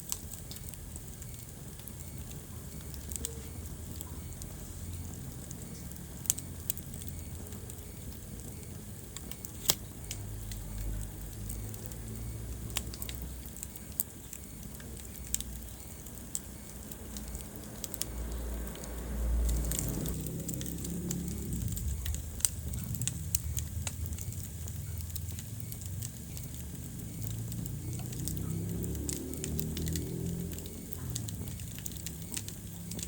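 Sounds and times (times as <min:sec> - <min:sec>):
fire crackles and pops: 0:00.0 - 0:33.0
fire flames rumbling: 0:00.0 - 0:33.0.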